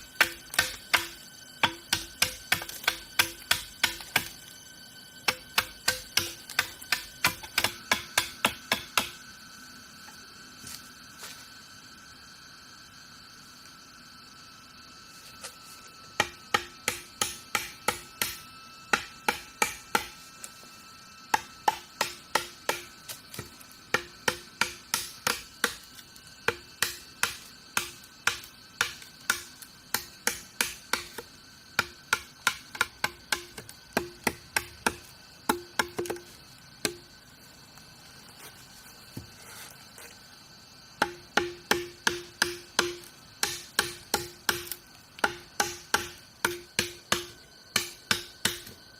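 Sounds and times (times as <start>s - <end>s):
insect drone: 0.0s - 48.9s
hand tool strikes: 0.2s - 4.3s, 5.3s - 9.2s, 16.2s - 20.2s, 21.3s - 37.1s, 41.0s - 48.7s.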